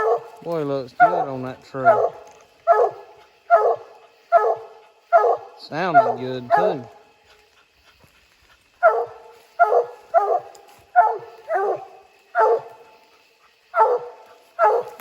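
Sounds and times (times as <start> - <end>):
dog barking: 0.0 - 0.4, 1.0 - 6.9, 8.8 - 13.0, 13.7 - 15.0.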